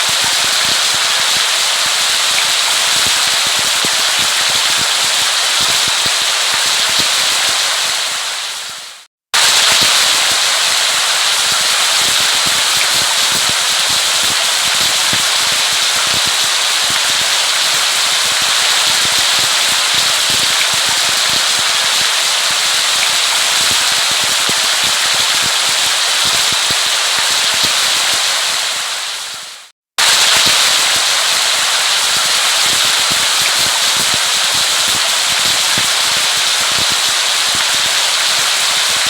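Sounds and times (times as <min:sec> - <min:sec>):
steady rain hiss: 0:00.0 - 0:39.0.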